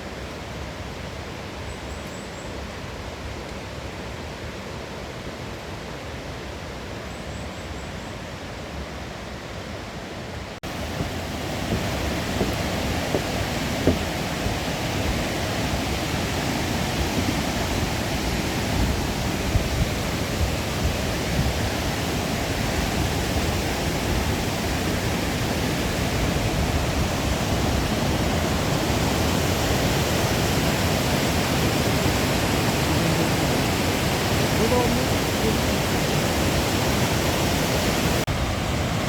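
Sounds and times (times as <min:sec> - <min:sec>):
mountain stream rushing: 0:08.7 - 0:39.0
faint knocks: 0:11.0 - 0:14.1.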